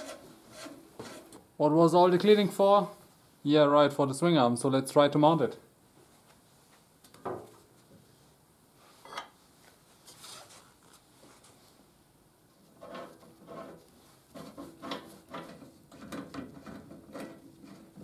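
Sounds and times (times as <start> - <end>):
metal scraping: 0.0 - 1.4
metal-on-metal knocks and clatter: 12.8 - 18.0.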